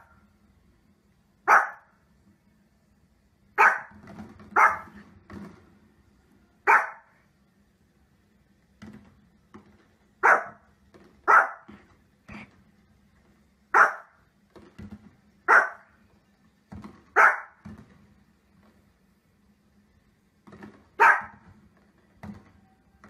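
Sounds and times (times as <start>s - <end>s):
small dog barking: 1.4s - 1.9s, 3.6s - 4.0s, 4.6s - 5.0s, 6.6s - 7.2s, 10.2s - 11.7s, 13.7s - 14.2s, 15.5s - 15.9s, 17.2s - 17.6s, 21.0s - 21.4s.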